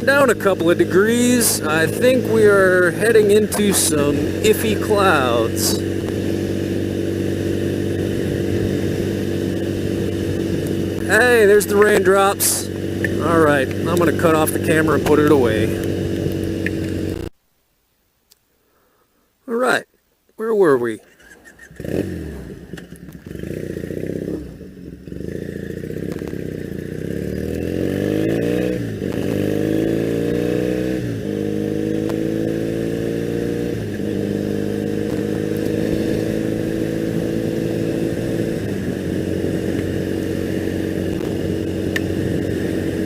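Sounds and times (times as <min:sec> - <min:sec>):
motorcycle engine accelerating: 0:00.0 - 0:17.3, 0:21.0 - 0:43.0.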